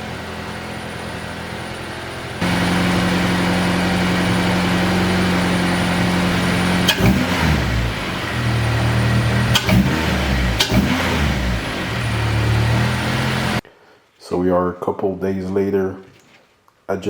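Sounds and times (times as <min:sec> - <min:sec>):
car engine idling and revving: 0:00.0 - 0:13.6.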